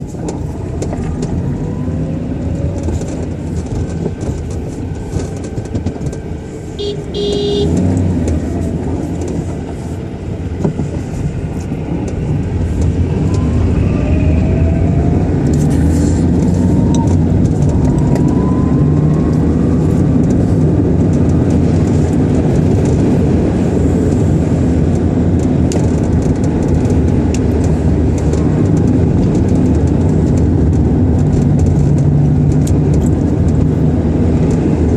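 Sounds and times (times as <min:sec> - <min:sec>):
car engine road and wind rumble: 0:00.0 - 0:34.9.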